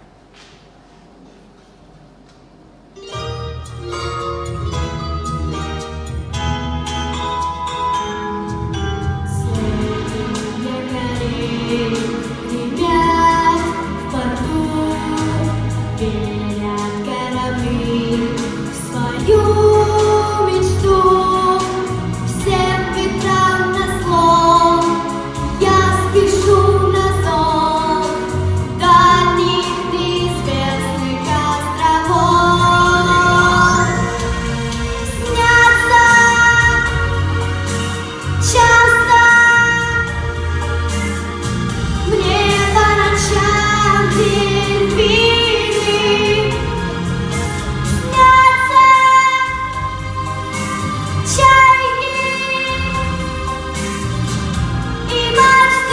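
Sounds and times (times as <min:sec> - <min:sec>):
instrumental backing: 0:00.0 - 0:55.9
pop song with vocals: 0:08.2 - 0:55.9.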